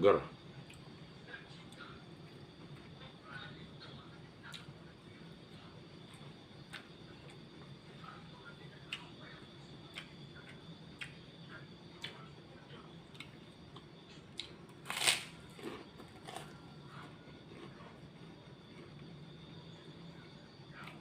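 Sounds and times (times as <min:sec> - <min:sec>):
crunchy chewing: 0:05.6 - 0:21.0.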